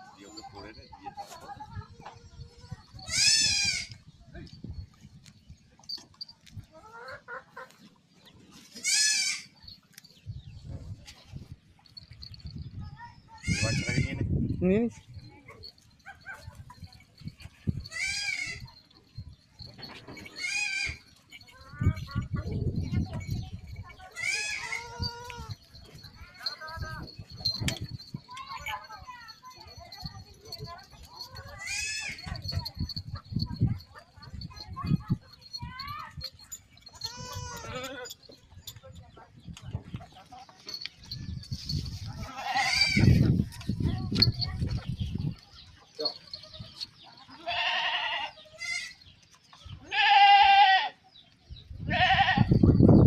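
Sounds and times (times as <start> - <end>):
farmyard animal calls: 0.0 - 4.2, 4.8 - 53.0
young goat bleating: 2.1 - 4.0, 8.8 - 9.5, 13.3 - 14.3, 17.6 - 18.8, 20.3 - 21.1, 24.0 - 25.6, 31.3 - 32.4, 36.9 - 38.1, 42.2 - 43.2, 47.3 - 49.0, 49.8 - 51.0, 51.8 - 52.6.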